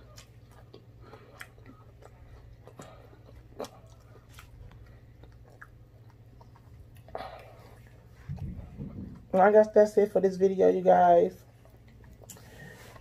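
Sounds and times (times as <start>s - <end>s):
crunchy chewing: 0.0s - 9.3s
low steady hum: 0.0s - 13.0s.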